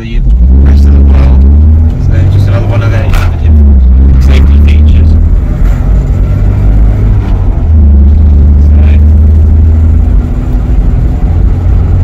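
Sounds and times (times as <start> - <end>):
car engine droning: 0.0 - 12.0
road noise inside car: 0.0 - 12.0.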